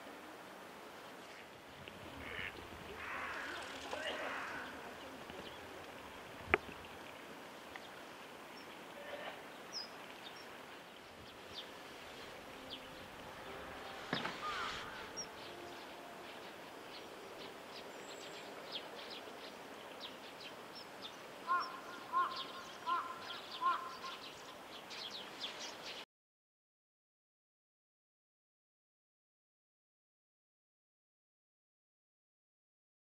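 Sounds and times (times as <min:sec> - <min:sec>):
riverside ambience: 0:10.9 - 0:19.1
burst of noise and calls: 0:12.0 - 0:16.2.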